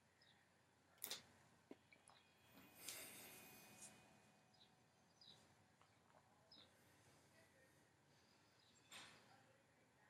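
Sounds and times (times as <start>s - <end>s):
faint high chirp: 1.8s - 6.8s.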